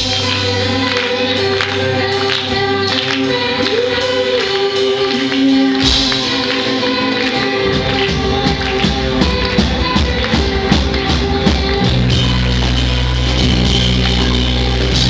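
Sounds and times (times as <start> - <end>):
person singing: 0.0 - 15.0
pop-rock band playing: 0.0 - 15.0
steady drum beat: 4.8 - 15.0.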